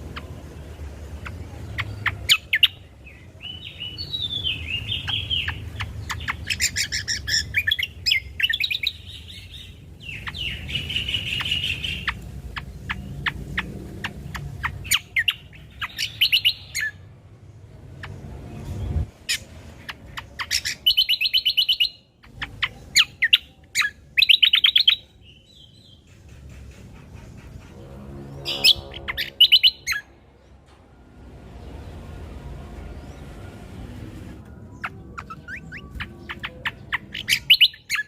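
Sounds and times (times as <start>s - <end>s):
bird singing warbles and trills: 0.0s - 30.8s, 31.5s - 38.0s
low steady hum: 27.3s - 37.2s.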